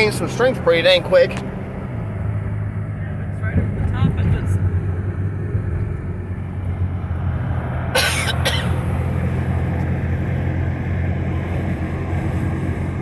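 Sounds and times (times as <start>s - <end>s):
car engine and road noise: 0.0s - 13.0s
person coughing: 8.0s - 8.8s.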